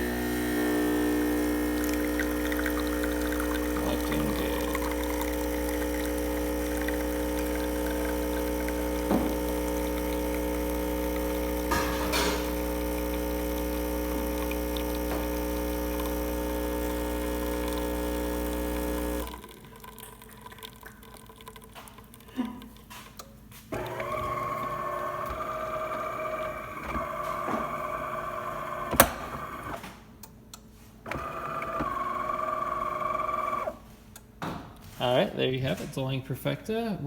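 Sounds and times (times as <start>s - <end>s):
espresso machine pump running: 0.0s - 22.2s, 23.7s - 29.8s, 31.1s - 33.8s
coffee pouring: 0.0s - 23.1s, 23.8s - 28.9s.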